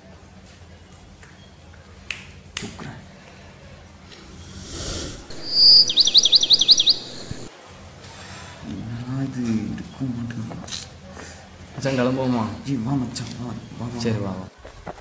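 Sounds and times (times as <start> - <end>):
soft whoosh: 4.1 - 6.0
bird whistling and chirping: 5.3 - 7.5.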